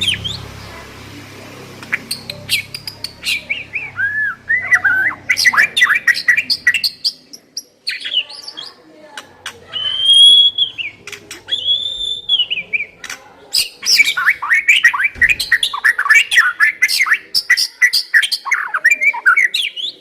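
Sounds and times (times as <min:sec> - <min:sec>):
bird singing whistled notes: 0:01.9 - 0:07.3, 0:09.7 - 0:13.0.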